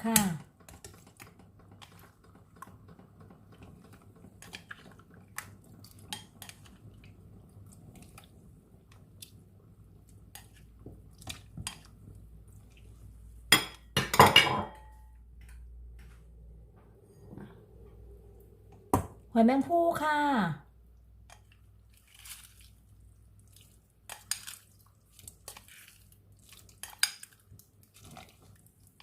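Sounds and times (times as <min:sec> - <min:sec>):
utensils clinking on a pot: 0:13.6 - 0:15.0.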